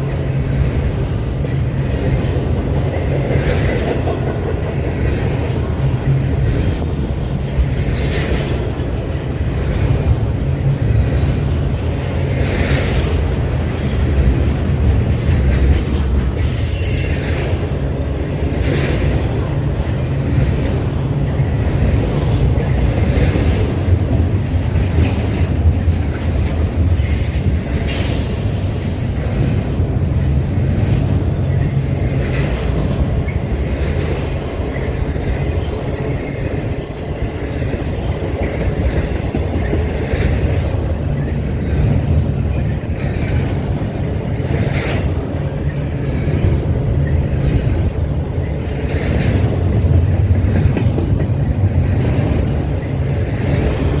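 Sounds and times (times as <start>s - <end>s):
train rumbling past: 0.0s - 54.0s
wheels clicking over rail joints: 0.0s - 54.0s.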